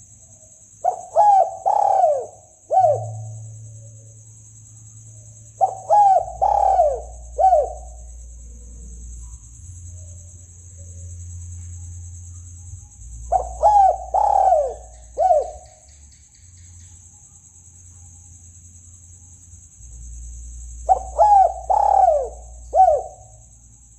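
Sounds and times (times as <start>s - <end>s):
dove cooing: 0.8s - 3.5s, 5.6s - 9.0s, 13.3s - 15.9s, 20.8s - 23.4s.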